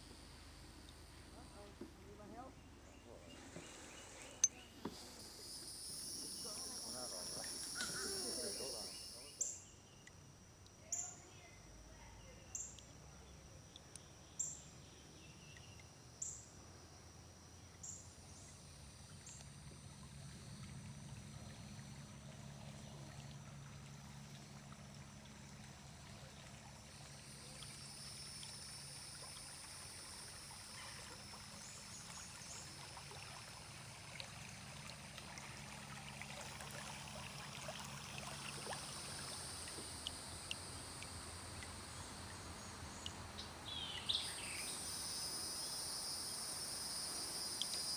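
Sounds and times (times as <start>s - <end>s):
insects buzzing faintly: 0.0s - 47.9s
water trickling off paddle: 18.3s - 43.4s
kayak paddle dipping in water: 30.7s - 41.8s.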